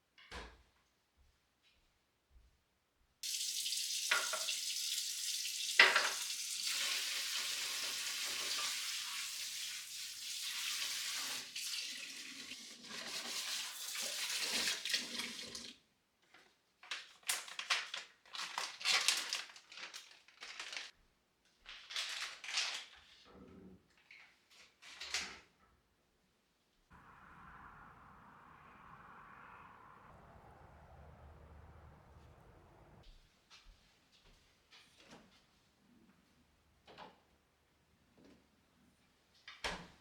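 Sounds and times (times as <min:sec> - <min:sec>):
water running from tap: 0:03.2 - 0:15.8
clatters and rustles of handling: 0:16.2 - 0:25.6.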